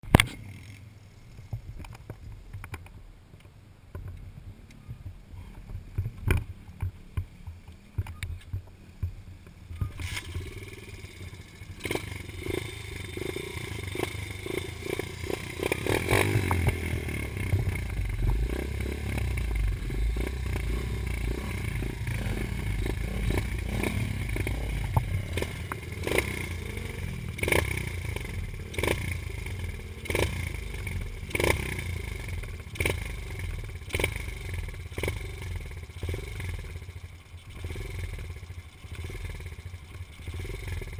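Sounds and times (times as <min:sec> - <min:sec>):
dirt bike engine running: 0:04.4 - 0:40.9
bumps and clatter: 0:11.4 - 0:30.4.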